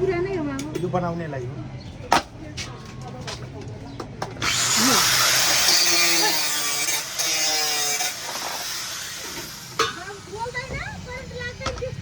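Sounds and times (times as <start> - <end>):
power tool grinding: 4.3 - 12.0.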